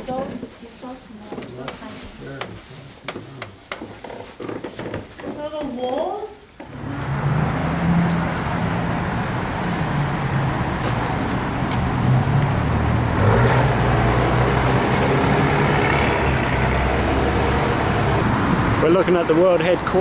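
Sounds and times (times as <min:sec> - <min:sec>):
road noise: 0:06.6 - 0:20.0
vehicle engine humming: 0:06.6 - 0:20.0.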